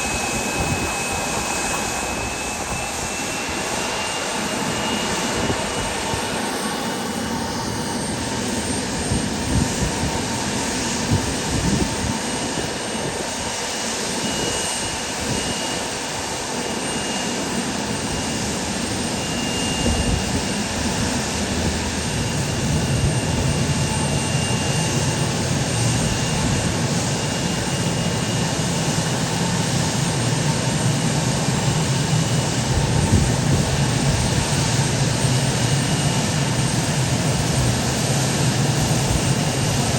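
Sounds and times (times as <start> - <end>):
airliner engines running: 0.0 - 39.9.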